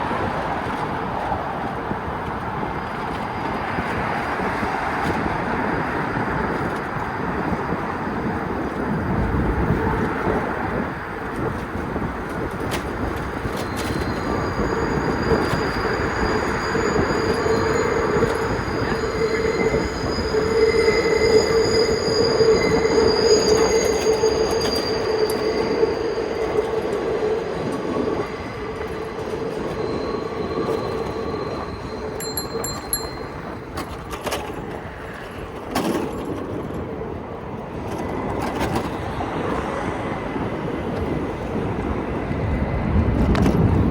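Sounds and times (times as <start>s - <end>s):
train rumbling past: 0.0s - 43.9s
train wheels squealing: 2.6s - 36.6s.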